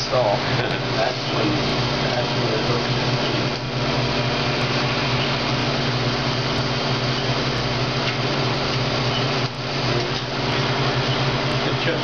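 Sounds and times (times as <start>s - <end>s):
vacuum turbine whirring: 0.0s - 12.0s.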